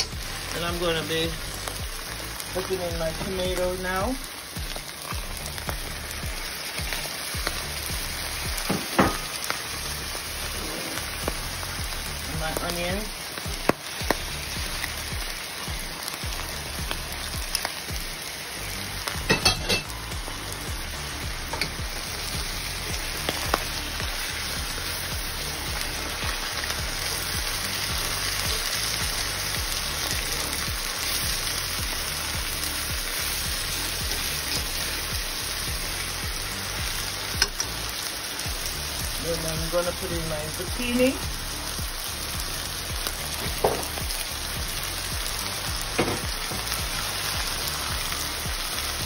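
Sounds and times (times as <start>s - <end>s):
food sizzling in a pan: 0.0s - 49.0s
knocks against a pan: 8.7s - 9.3s, 43.6s - 43.9s, 46.0s - 46.3s.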